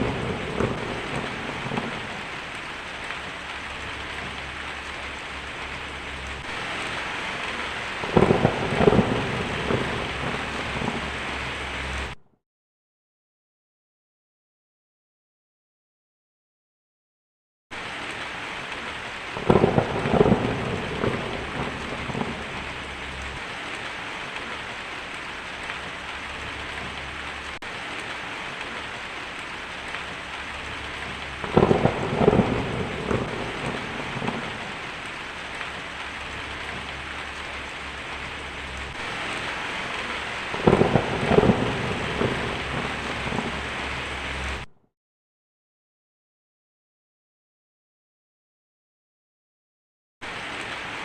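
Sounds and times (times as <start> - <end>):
steady rain: 0.0 - 12.2, 17.7 - 44.7, 50.2 - 51.0
thunder rolling: 0.0 - 12.2, 19.3 - 24.0, 29.6 - 44.7.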